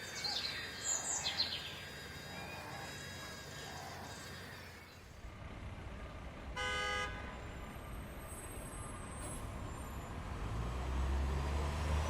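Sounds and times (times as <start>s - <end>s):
vehicle engine rumble: 3.1s - 12.0s
car horn toot: 6.6s - 7.2s.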